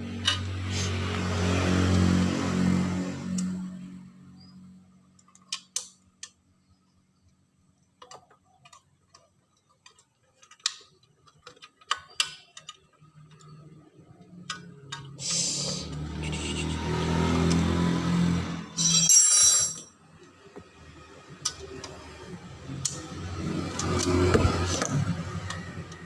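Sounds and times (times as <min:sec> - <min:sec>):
tools clicking and tapping: 0:00.2 - 0:00.5, 0:05.1 - 0:06.4, 0:07.9 - 0:15.2, 0:18.8 - 0:20.7, 0:21.3 - 0:22.0.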